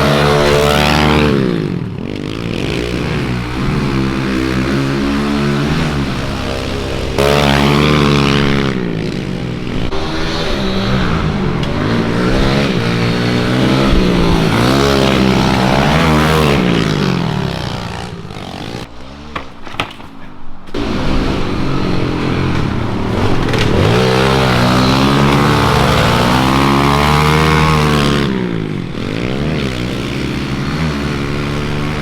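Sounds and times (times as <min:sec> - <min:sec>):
pit bike engine revving: 0:00.0 - 0:20.0, 0:20.7 - 0:32.0.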